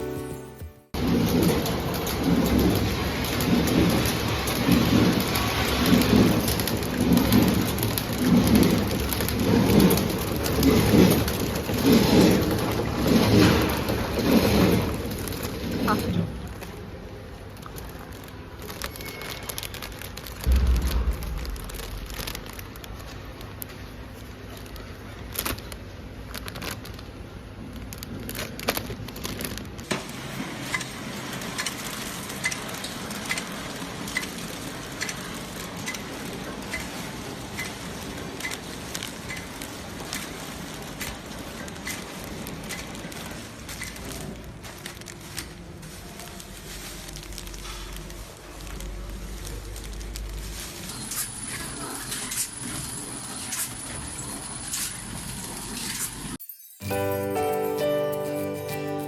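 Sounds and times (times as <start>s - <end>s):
packaging machine hissing: 1.0s - 20.5s, 24.5s - 56.4s
machine knocks: 20.5s - 22.7s.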